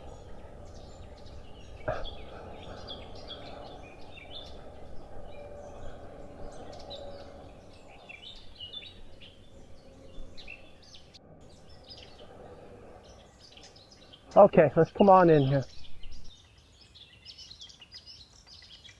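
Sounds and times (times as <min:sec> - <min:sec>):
low rumble: 0:00.0 - 0:16.4
songbirds chirping: 0:00.0 - 0:18.9.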